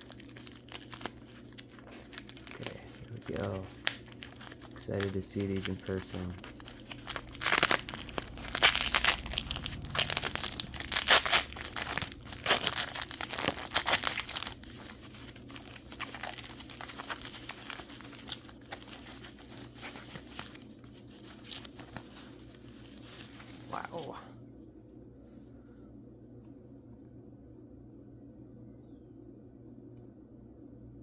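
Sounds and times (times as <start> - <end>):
packing wrap crinkling and tearing: 0.0 - 24.1.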